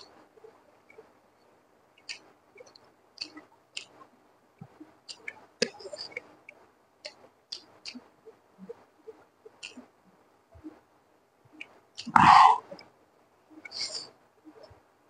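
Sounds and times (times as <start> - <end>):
lip smacks: 9.6 - 9.8.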